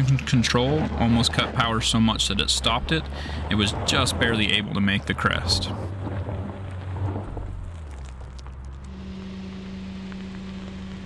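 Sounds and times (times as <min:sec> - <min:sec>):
car engine pulling away: 0:00.0 - 0:11.0
engine idling hum: 0:00.0 - 0:11.0
gravel ticks: 0:00.0 - 0:11.0.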